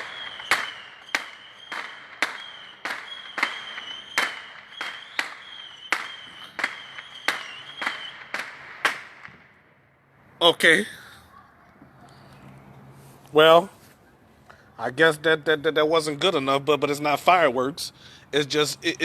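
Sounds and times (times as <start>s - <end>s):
high whistling tone: 0.0s - 8.4s
firecracker bangs: 0.0s - 9.6s.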